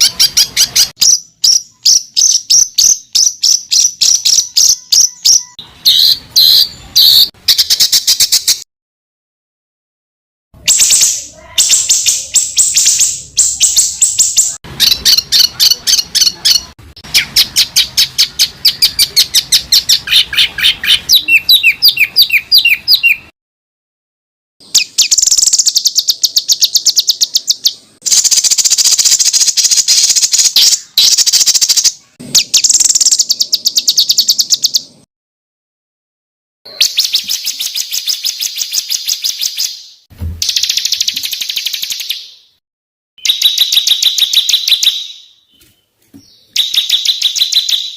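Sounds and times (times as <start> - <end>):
songbird rapid sharp notes: 24.6 - 34.9.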